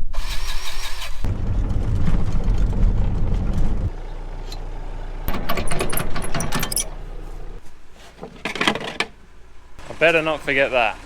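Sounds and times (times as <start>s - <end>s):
wind buffeting microphone: 1.2s - 4.0s
light metallic clinks and rattles: 5.3s - 7.6s.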